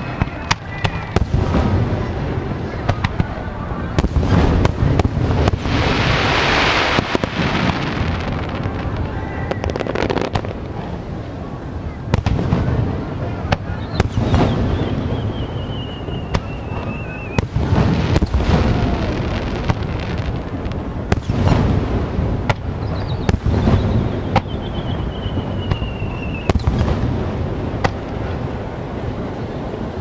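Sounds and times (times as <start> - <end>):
firework whistle: 0.0 - 2.2, 4.3 - 10.7, 11.9 - 20.4, 22.5 - 27.2
fireworks bangs and crackles: 0.0 - 30.0.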